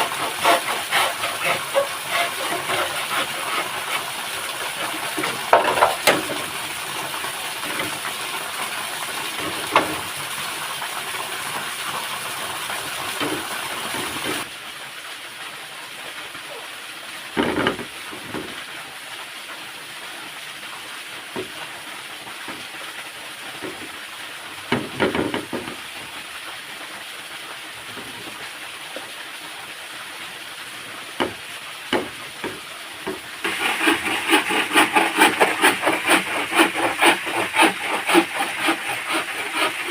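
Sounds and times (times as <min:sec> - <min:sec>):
saw rasping through wood: 0:00.0 - 0:08.1, 0:09.4 - 0:10.1, 0:33.0 - 0:39.9
waterfall rushing: 0:00.0 - 0:39.9.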